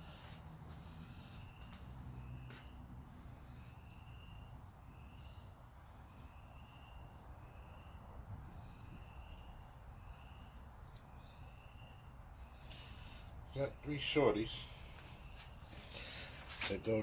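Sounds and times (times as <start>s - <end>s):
high whistled bird calls: 3.4s - 14.8s.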